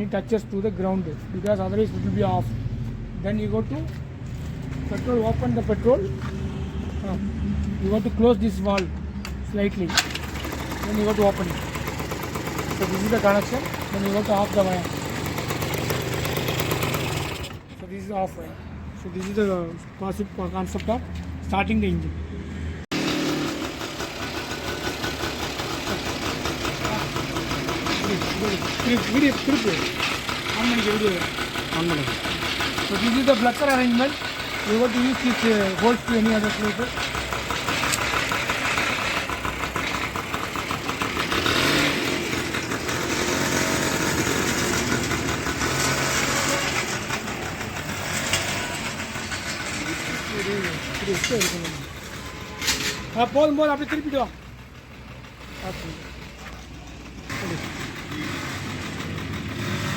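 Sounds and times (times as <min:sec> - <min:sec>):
small petrol engine idling: 0:07.8 - 0:17.7, 0:22.9 - 0:59.9.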